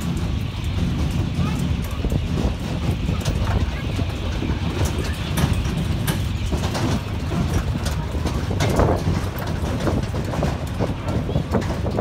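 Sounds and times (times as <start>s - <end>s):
carriage rattles and clicks: 0.0s - 12.0s
mini train rumbling: 0.0s - 12.0s.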